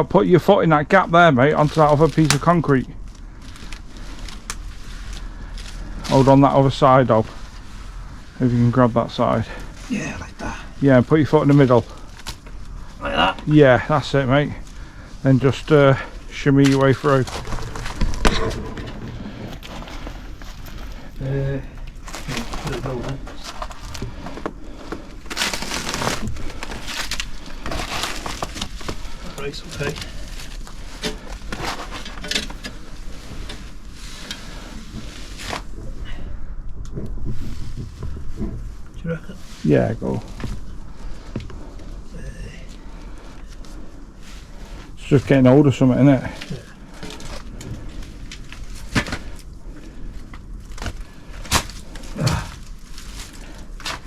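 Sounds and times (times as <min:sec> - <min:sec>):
crunching over concrete rubble: 0:10.6 - 0:34.6, 0:46.2 - 0:54.0.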